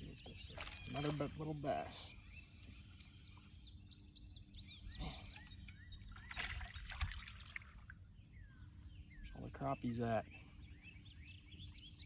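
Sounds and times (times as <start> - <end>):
high insect drone: 0.0 - 11.9
bird chirps: 0.0 - 12.0.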